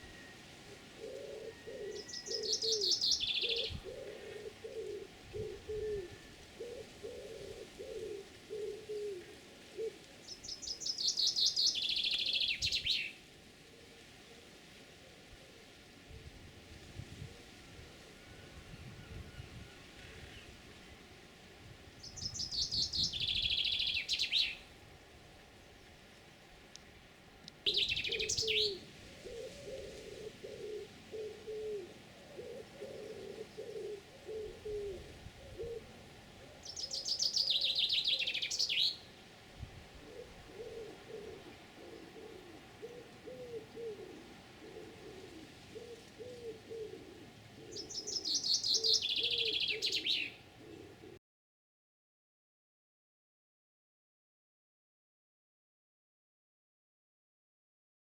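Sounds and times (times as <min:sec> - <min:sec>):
pigeon cooing: 0:00.0 - 0:10.1, 0:27.7 - 0:38.9, 0:39.9 - 0:51.2
songbird trilling: 0:01.0 - 0:06.2, 0:10.3 - 0:13.1, 0:22.0 - 0:24.6, 0:27.7 - 0:28.9, 0:36.6 - 0:39.1, 0:47.6 - 0:51.0.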